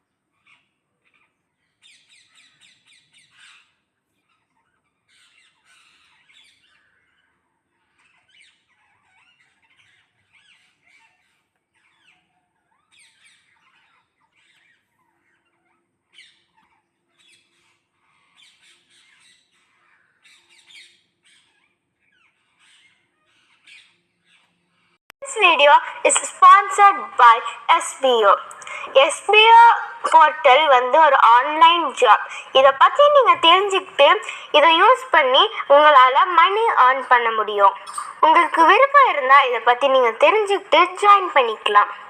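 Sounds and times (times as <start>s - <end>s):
parrots screeching: 0.4s - 24.9s, 37.6s - 38.2s.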